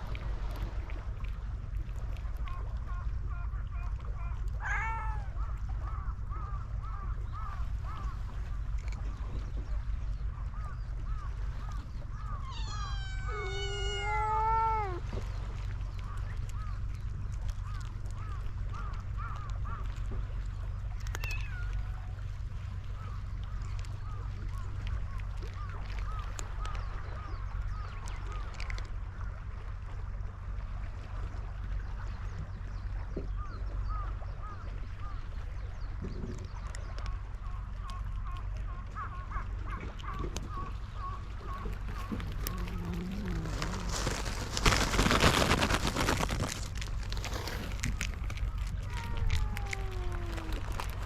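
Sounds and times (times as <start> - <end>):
steady low rumble: 0.0 - 51.0
high arched animal calls: 3.5 - 6.1, 12.1 - 15.0, 39.0 - 46.5, 47.9 - 51.0
cat meowing: 4.6 - 5.4, 12.4 - 15.0, 42.0 - 44.1, 48.8 - 51.0.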